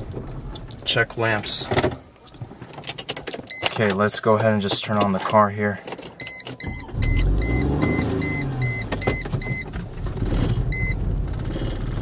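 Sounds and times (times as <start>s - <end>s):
dashboard warning chime beeping: 3.5s - 3.9s, 6.2s - 9.7s, 10.7s - 11.0s
car engine starting: 6.4s - 12.0s.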